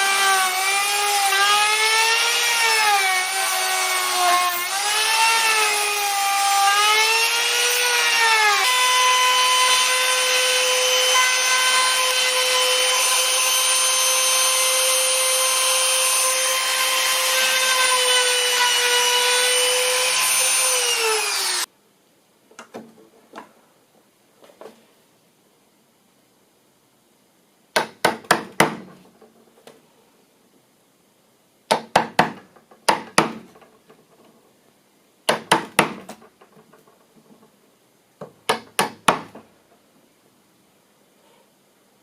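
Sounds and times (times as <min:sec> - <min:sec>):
router cutting wood: 0:00.0 - 0:21.7.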